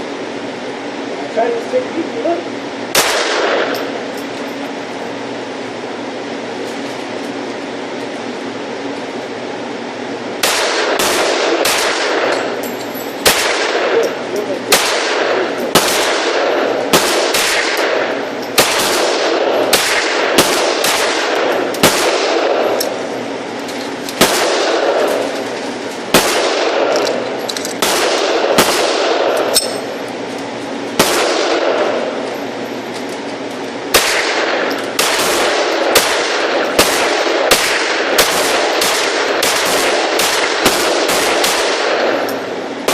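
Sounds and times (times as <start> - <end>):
steady low hum: 0.0 - 42.9
pistol shots echoing: 2.9 - 4.0, 10.4 - 12.6, 13.2 - 23.0, 24.2 - 25.4, 26.1 - 29.8, 31.0 - 32.2, 33.9 - 42.9.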